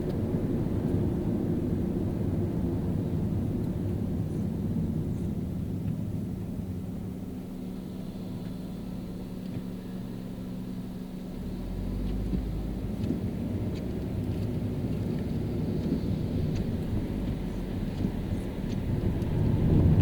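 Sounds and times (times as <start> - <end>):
deep rumble: 0.0 - 10.5, 11.3 - 20.0
car engine hum: 0.0 - 20.0
tyre noise on wet road: 11.3 - 20.0.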